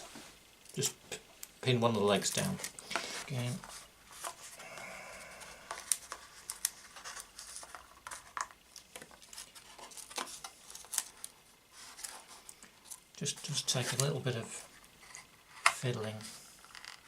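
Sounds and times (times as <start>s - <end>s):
tape and plastic film crinkling: 5.7s - 16.0s.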